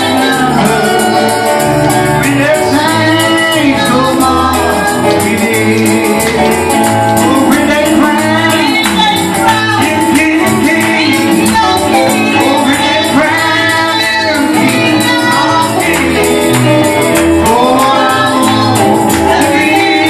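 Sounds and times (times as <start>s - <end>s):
tambourine-like percussion: 0.0s - 20.0s
voices singing over a band: 0.0s - 20.0s.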